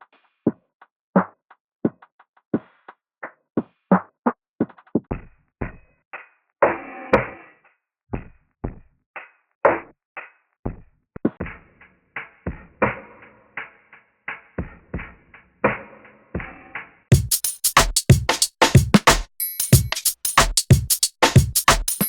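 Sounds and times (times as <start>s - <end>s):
drum machine beat: 17.1s - 22.0s.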